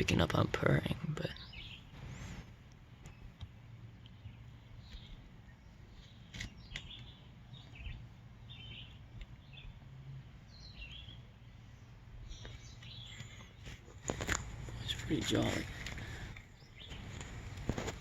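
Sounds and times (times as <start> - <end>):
faint bird chirps: 10.5 - 13.8.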